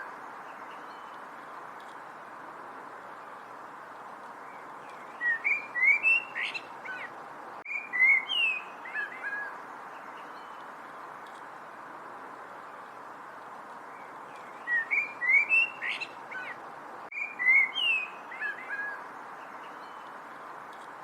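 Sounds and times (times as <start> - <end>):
songbird singing: 0.0 - 21.0
steady background hiss: 0.0 - 21.0.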